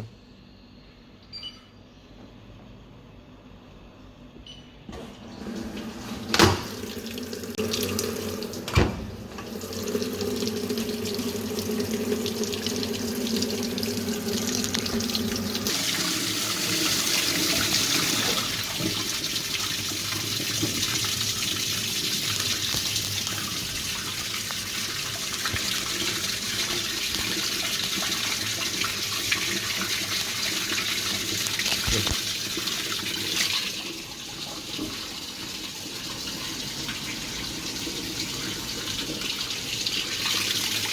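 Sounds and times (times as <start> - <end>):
washing machine humming: 2.3 - 40.9
washing machine click: 4.9 - 7.0, 8.6 - 9.6
water rushing into tub: 5.2 - 40.9.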